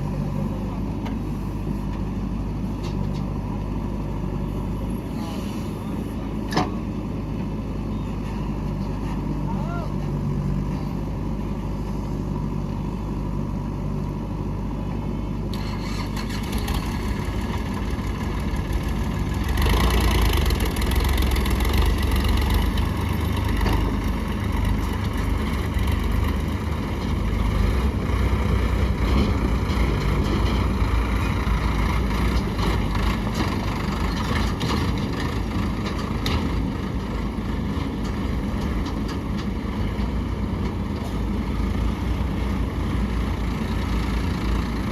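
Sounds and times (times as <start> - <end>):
heavy diesel engine running: 0.0 - 44.9.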